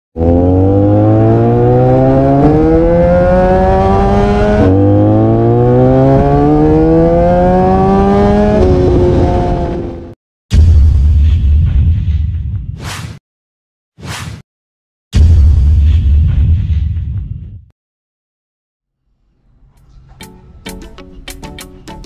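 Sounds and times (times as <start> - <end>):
motorcycle engine accelerating: 0.2 - 10.2.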